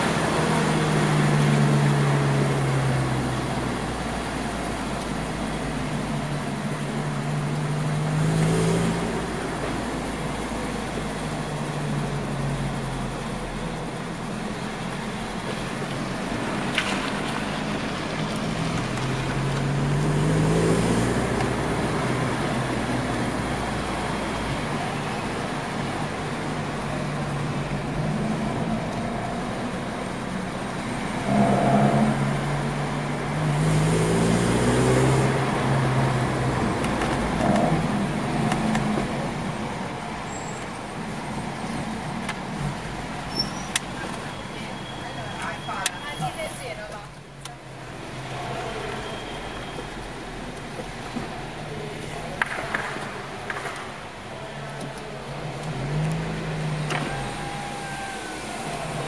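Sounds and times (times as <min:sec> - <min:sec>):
road rumble: 0:00.0 - 0:59.0
car engine accelerating: 0:16.1 - 0:39.8.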